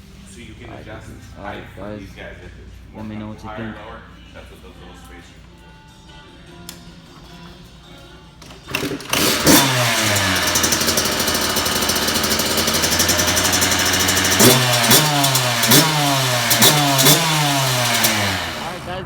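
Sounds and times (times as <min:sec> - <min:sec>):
dirt bike engine revving: 0:08.4 - 0:19.0.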